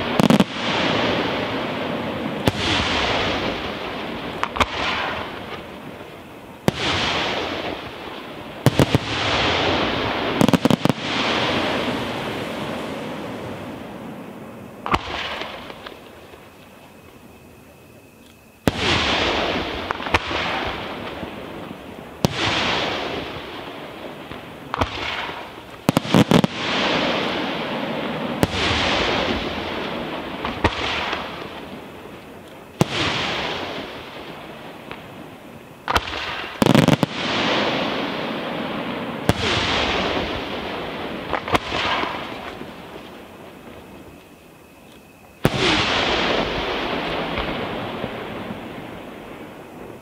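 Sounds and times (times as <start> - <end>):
fireworks bursting: 0.0 - 50.0.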